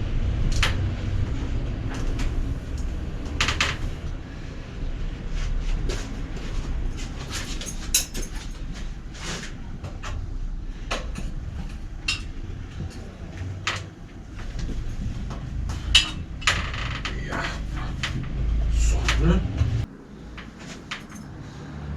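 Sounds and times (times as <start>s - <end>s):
steady low rumble: 0.0s - 21.9s
bicycle parts and tools clicking: 7.3s - 14.0s, 14.6s - 18.4s, 20.3s - 21.4s.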